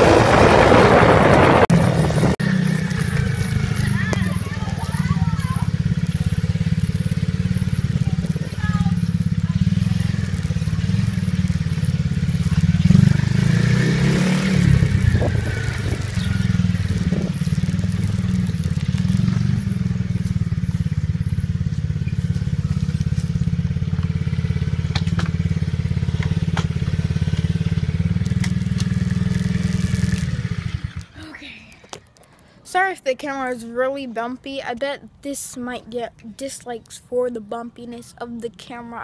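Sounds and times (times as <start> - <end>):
dirt bike engine running: 0.0 - 31.2.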